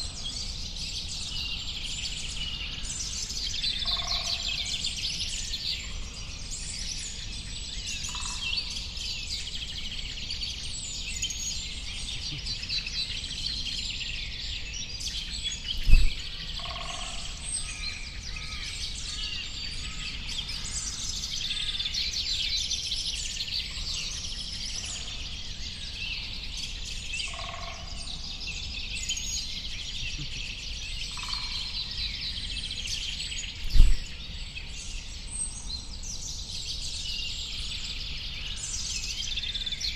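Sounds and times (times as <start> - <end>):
songbirds chirping and twittering: 0.0 - 39.9
low thumps: 15.8 - 16.2, 33.7 - 34.1.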